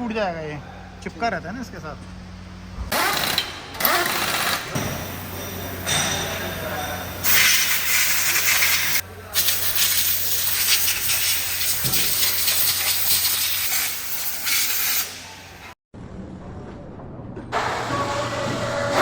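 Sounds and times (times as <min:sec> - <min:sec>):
compressed air hissing: 0:07.2 - 0:15.5.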